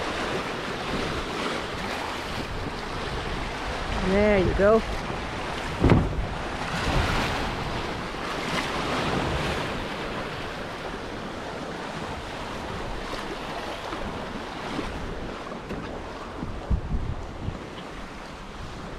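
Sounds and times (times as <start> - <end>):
water rushing past a hull: 0.0 - 18.9
wind on microphone: 0.0 - 18.9
sharp thump: 5.8 - 6.2.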